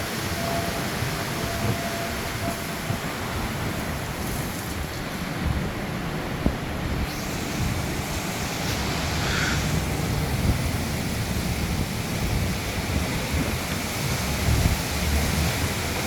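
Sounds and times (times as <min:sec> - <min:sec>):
dust storm wind buffeting microphone: 0:00.0 - 0:16.0.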